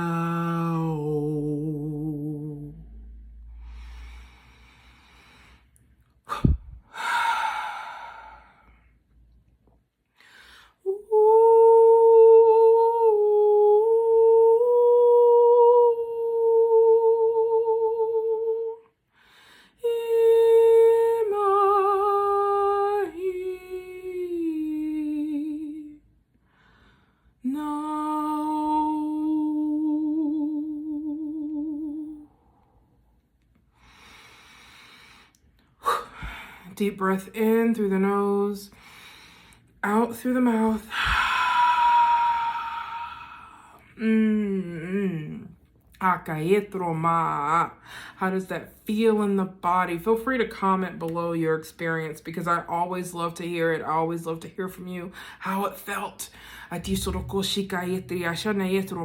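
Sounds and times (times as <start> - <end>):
woman vocal toning with vibrato: 0.0 - 3.1, 39.8 - 45.6, 56.7 - 59.0
breath in: 3.5 - 9.0, 10.2 - 10.8, 56.3 - 56.7.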